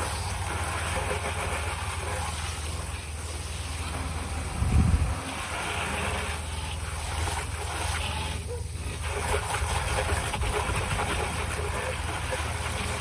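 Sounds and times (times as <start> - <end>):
low rumble: 4.2 - 5.6.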